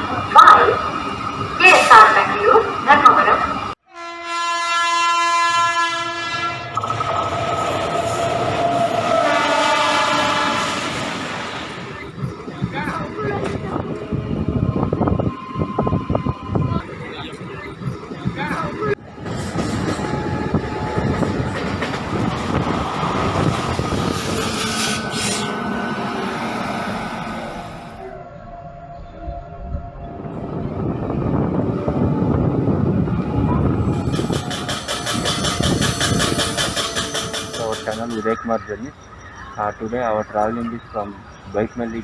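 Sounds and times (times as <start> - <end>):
train rumbling on rails: 0.0 - 3.8, 4.7 - 42.0
train horn blast: 3.8 - 6.8, 8.6 - 11.0, 34.1 - 38.1.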